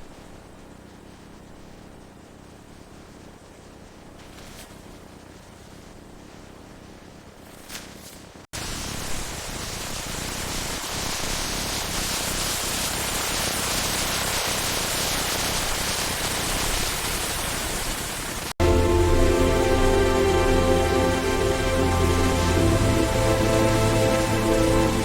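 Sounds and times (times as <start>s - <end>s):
steady hiss: 0.0s - 25.0s
music with sustained notes: 18.6s - 25.0s.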